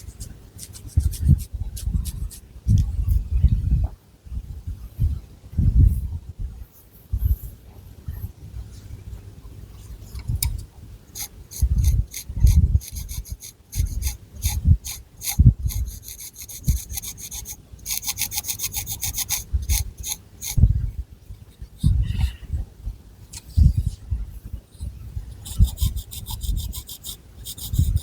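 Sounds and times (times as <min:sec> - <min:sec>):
fingernails scratching hair: 0:00.0 - 0:02.4, 0:11.2 - 0:20.6, 0:25.4 - 0:28.0.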